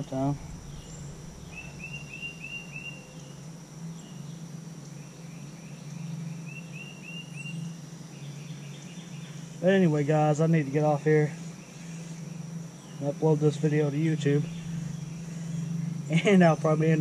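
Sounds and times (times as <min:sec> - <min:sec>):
bird chirping: 0:00.0 - 0:17.0
high insect drone: 0:00.0 - 0:17.0
low hum: 0:00.0 - 0:17.0.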